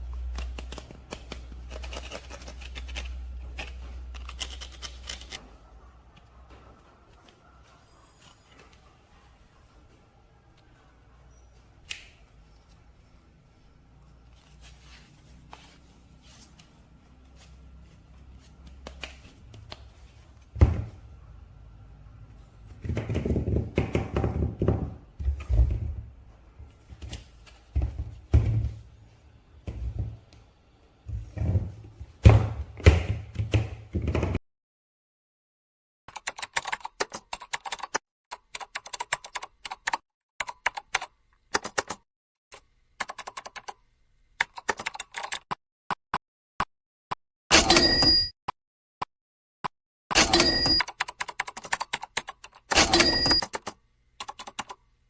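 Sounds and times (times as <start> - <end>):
toy packaging clicks and rustles: 0.1 - 5.4.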